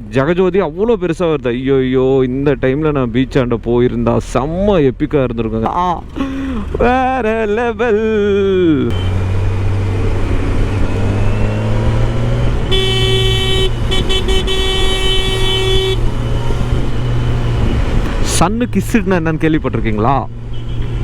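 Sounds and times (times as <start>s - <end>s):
road noise: 0.0s - 21.0s
vehicle horn: 12.6s - 16.6s.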